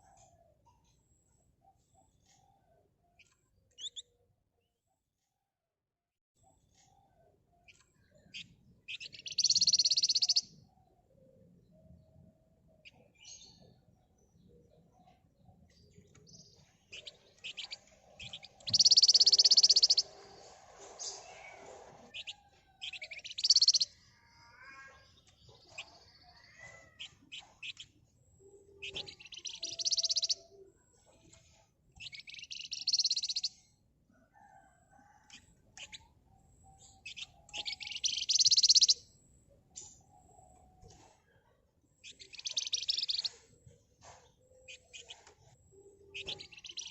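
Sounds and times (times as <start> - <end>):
soft bird chirps and whistles: 0.0 - 4.3, 6.5 - 46.9
songbird trilling: 3.8 - 4.0, 7.7 - 10.6, 16.9 - 20.2, 22.1 - 30.7, 32.0 - 33.6, 35.3 - 39.1, 42.0 - 43.4, 44.5 - 46.9.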